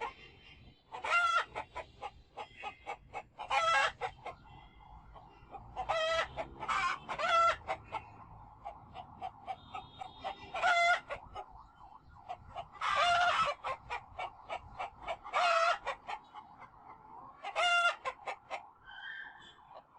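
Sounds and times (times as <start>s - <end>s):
chickens clucking: 0.0s - 19.9s
loud chicken calls: 0.0s - 19.9s.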